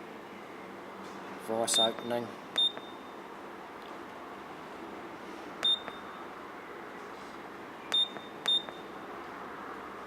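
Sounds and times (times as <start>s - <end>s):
keypad beeps: 1.7s - 3.1s, 5.6s - 6.3s, 7.9s - 9.0s.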